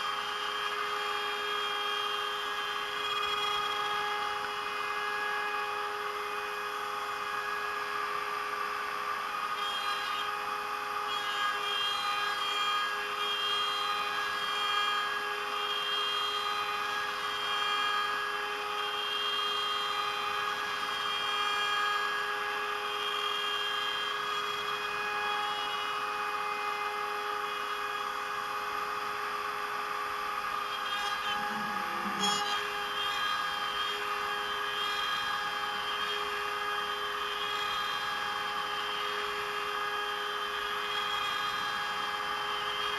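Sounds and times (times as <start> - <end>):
router spindle whining: 0.0 - 42.9.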